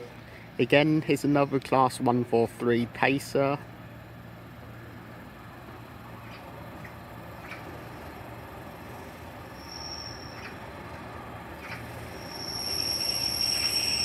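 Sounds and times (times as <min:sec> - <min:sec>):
diesel train approaching: 0:00.0 - 0:14.0
train wheels squealing: 0:09.4 - 0:10.9, 0:11.6 - 0:14.0.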